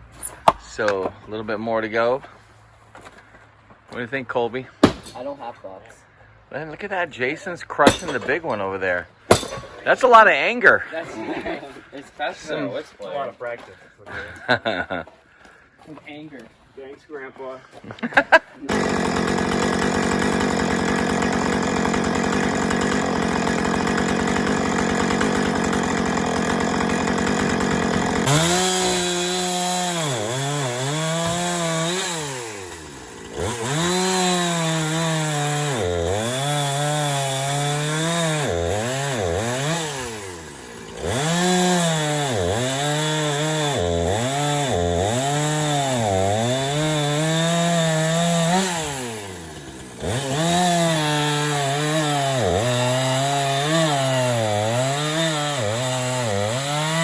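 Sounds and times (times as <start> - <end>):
chainsaw engine revving: 18.2 - 57.0.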